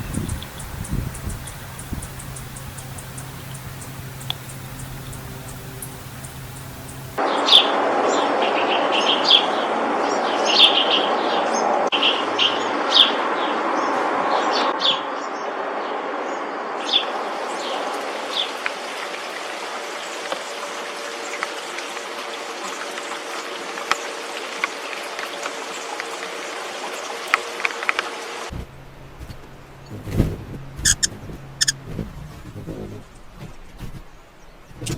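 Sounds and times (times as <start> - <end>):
bird chirping: 0.0 - 7.2, 30.8 - 33.2
steady rushing hiss: 0.0 - 7.2, 17.1 - 34.9.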